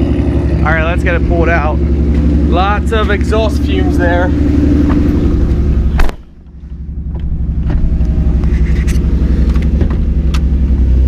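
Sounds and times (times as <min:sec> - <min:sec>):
car engine idling: 0:00.0 - 0:11.0
car door shutting: 0:04.8 - 0:06.3, 0:08.9 - 0:10.5.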